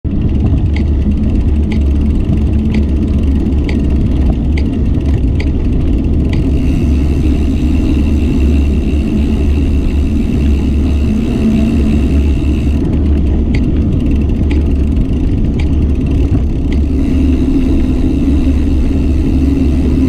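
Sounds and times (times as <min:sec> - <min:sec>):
wind and road noise rumble: 0:00.0 - 0:20.0
faint high whine: 0:06.4 - 0:12.8, 0:16.7 - 0:20.0.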